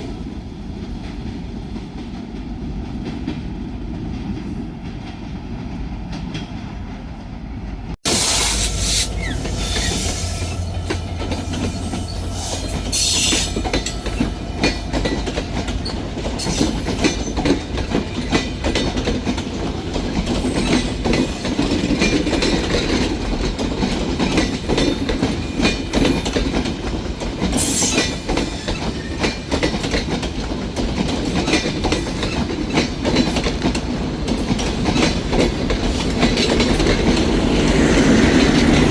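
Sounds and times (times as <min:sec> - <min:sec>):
train wheels clattering on rails: 0:00.0 - 0:38.9.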